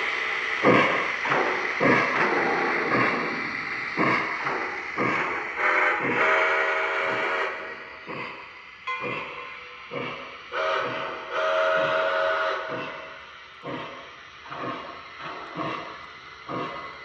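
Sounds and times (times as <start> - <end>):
steam locomotive chuffs: 0.0 - 17.0
steam whistle blasts: 5.6 - 7.7, 8.9 - 12.8.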